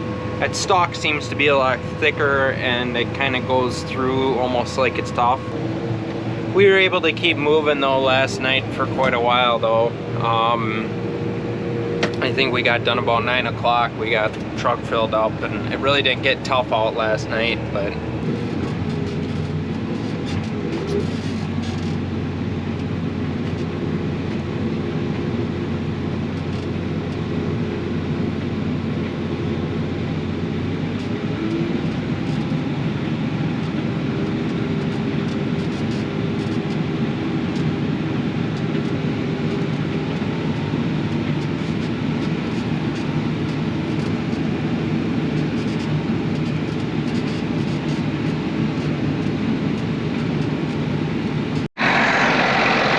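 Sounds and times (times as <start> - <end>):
combine harvester engine and threshing drone: 0.0 - 52.9.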